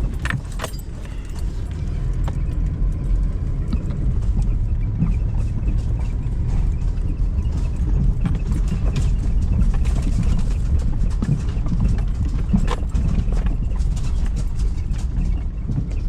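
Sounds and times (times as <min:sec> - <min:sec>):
knocks and rattles: 0:00.0 - 0:16.0
vehicle rumbling on rough road: 0:00.0 - 0:16.0.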